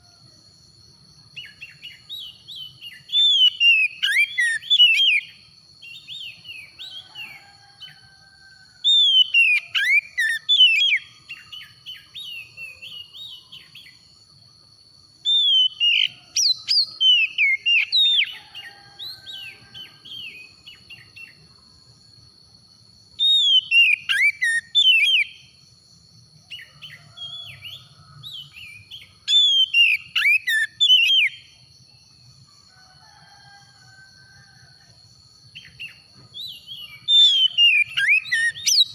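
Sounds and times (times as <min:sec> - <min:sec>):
bird singing whistled phrases: 0:01.4 - 0:05.3, 0:08.9 - 0:13.8, 0:15.3 - 0:18.4, 0:23.2 - 0:25.4, 0:28.4 - 0:31.4, 0:35.6 - 0:38.9.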